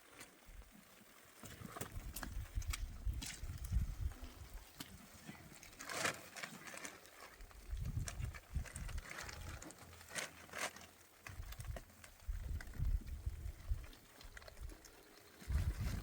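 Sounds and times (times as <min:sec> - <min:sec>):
hooves stepping on ground: 0:00.2 - 0:16.0
wind gusts on microphone: 0:02.0 - 0:04.6, 0:07.7 - 0:09.0, 0:12.3 - 0:13.9, 0:15.4 - 0:16.0.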